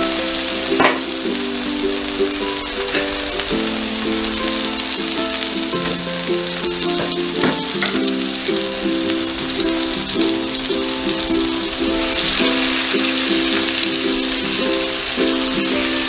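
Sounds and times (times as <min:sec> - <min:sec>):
background music: 0:00.0 - 0:16.0
food sizzling in hot oil: 0:00.0 - 0:16.0.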